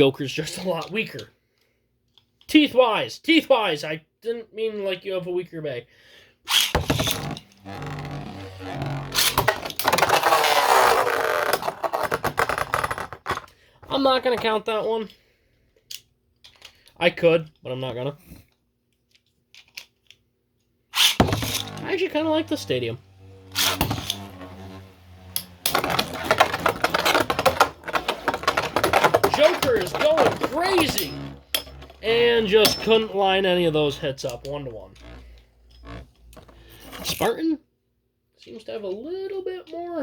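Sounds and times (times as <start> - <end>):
spinning tops clashing and scraping: 21.0 - 22.8, 23.5 - 35.2
launcher whir: 21.0 - 27.3
spinning tops landing hit: 21.0 - 34.4.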